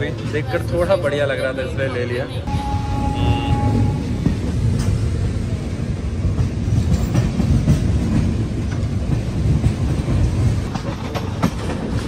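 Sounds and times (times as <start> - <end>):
train rumbling over tracks: 0.0 - 12.0.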